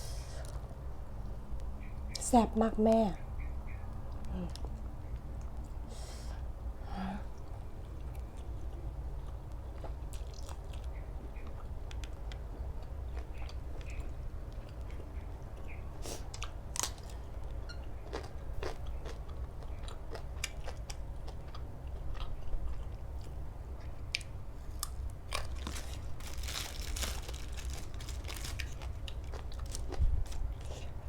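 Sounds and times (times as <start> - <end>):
steady low hum: 0.0 - 31.0
chewing and crunching food: 7.3 - 31.0.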